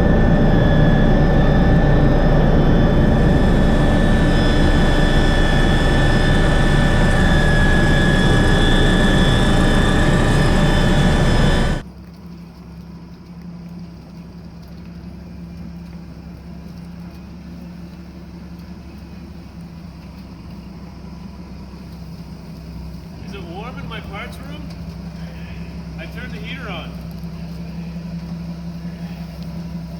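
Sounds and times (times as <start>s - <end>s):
helicopter turbine whine: 0.0s - 11.8s, 22.7s - 29.9s
low hum: 0.0s - 29.9s.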